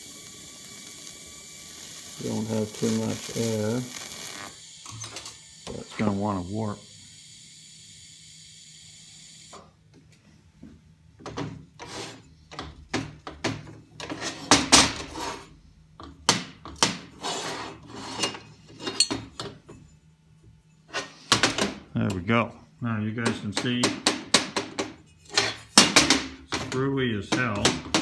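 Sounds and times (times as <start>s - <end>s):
steady high hiss: 0.0s - 7.0s.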